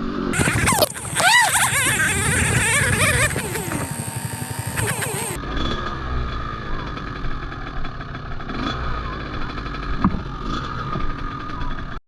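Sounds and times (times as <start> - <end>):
dirt bike engine running: 0.3 - 5.4.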